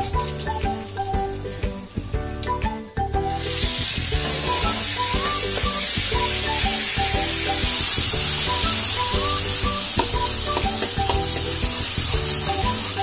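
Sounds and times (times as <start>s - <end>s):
background music: 0.0s - 13.0s
paste sizzling in hot oil: 3.2s - 13.0s.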